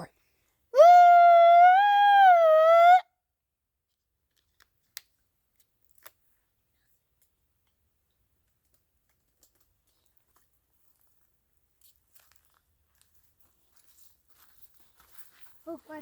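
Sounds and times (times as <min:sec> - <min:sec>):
person howling high-pitched: 0:00.8 - 0:03.1.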